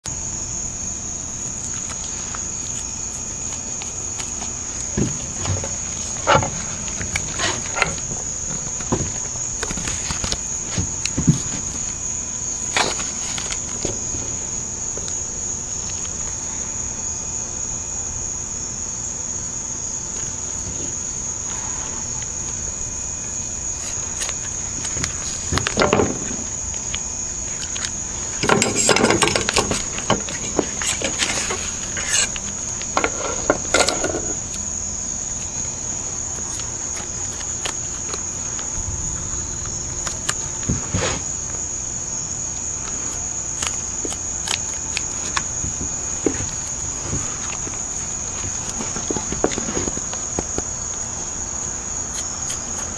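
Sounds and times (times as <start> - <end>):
insect chorus trilling: 0.0 - 52.9
handling knocks and rustling: 1.8 - 15.2, 23.8 - 34.6, 42.9 - 50.7.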